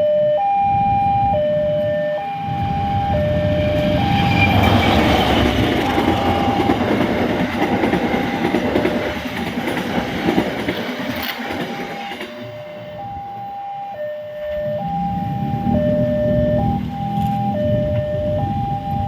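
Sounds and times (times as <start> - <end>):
two-tone crossing alarm: 0.0 - 9.6, 10.3 - 19.0
train wheels clattering over rails: 3.7 - 12.9.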